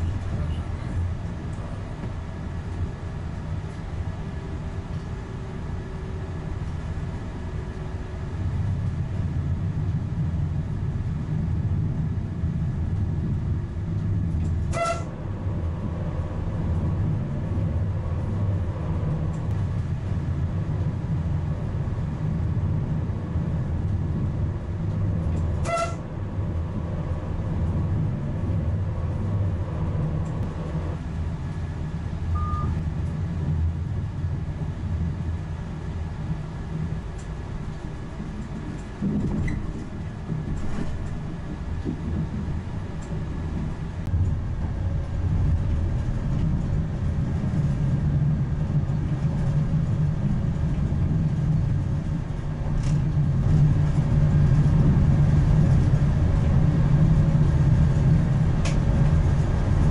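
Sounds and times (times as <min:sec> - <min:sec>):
train rumbling on the line: 0:00.0 - 0:59.9
short beeps: 0:32.3 - 0:32.8.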